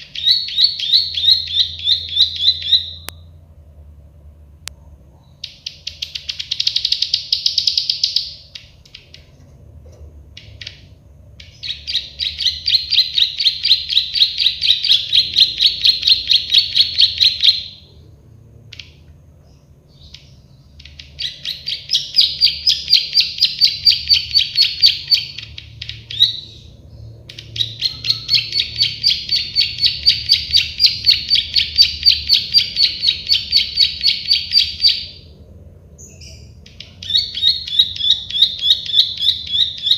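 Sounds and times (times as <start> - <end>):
bird singing rapid high notes: 0.0 - 3.2, 19.9 - 35.3, 36.0 - 39.9.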